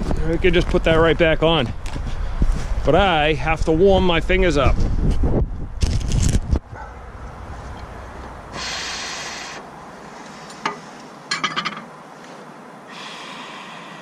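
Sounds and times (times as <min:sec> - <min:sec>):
person exhaling breath: 0:08.5 - 0:11.0, 0:12.9 - 0:14.0.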